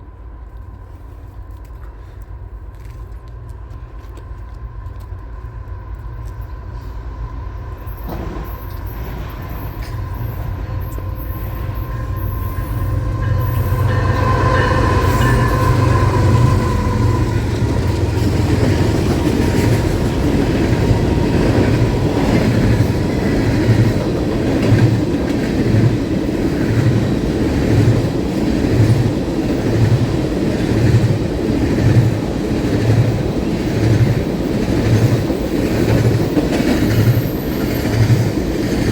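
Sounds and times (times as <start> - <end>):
train passing: 0.0 - 38.9
wheels clicking over rail joints: 7.8 - 38.9.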